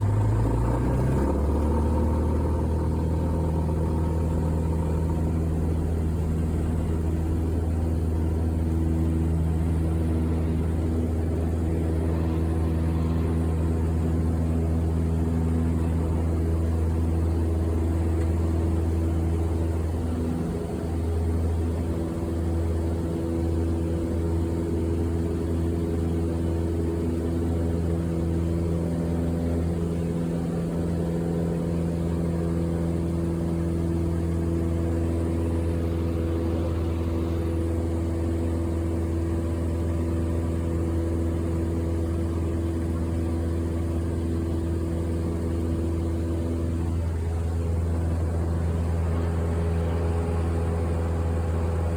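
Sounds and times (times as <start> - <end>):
low engine drone: 0.0 - 51.9.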